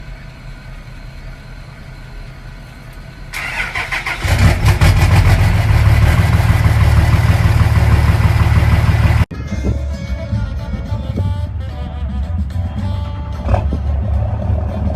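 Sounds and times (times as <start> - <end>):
diesel engine idling with clatter: 0.0 - 14.9.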